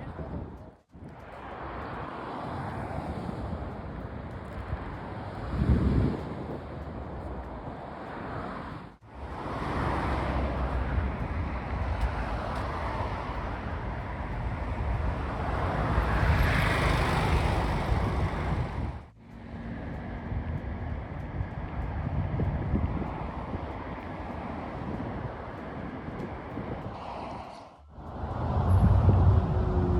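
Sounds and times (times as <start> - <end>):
motorway traffic rush: 0.0 - 29.9
vehicle passing: 7.7 - 29.9.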